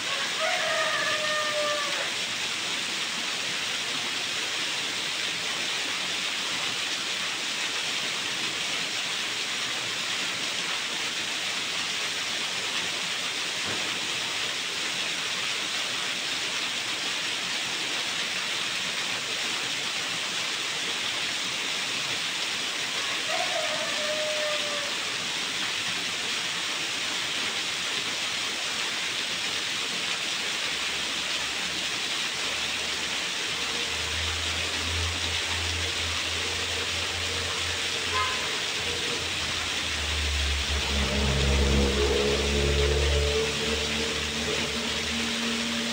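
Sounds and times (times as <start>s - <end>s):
water falling and splashing: 0.0s - 45.9s
brief falling tone: 34.9s - 45.9s.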